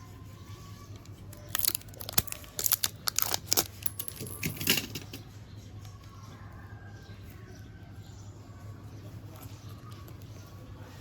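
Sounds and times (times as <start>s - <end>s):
small hard objects clicking: 1.3s - 5.2s.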